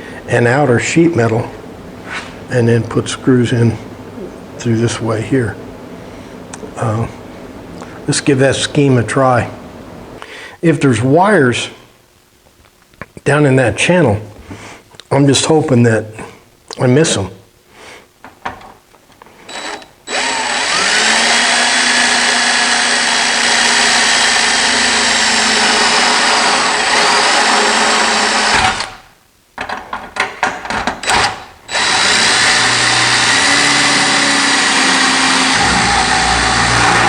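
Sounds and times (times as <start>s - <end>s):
power drill boring through sheet metal: 19.5s - 29.0s, 31.0s - 37.0s.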